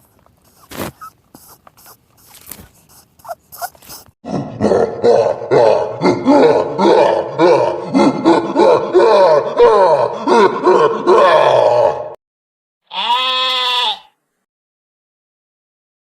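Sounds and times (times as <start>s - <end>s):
animals bleating: 12.9s - 14.2s.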